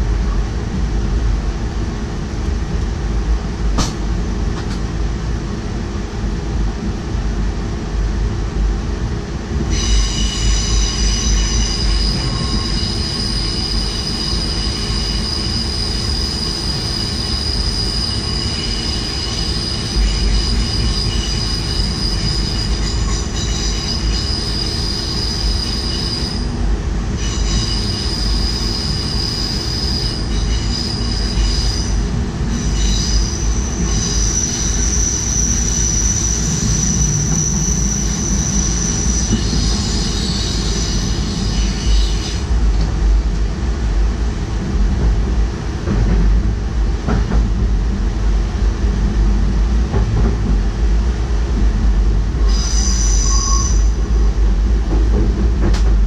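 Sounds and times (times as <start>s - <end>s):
train rolling with low rumble: 0.0s - 56.0s
wheels squealing on rails: 9.6s - 43.0s, 51.9s - 55.9s.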